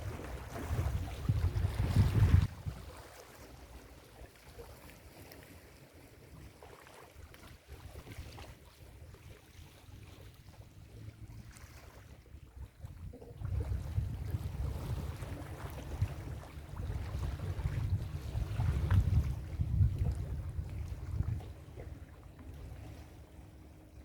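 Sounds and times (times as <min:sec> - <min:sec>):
wind on microphone: 0:00.0 - 0:03.0, 0:12.4 - 0:23.1.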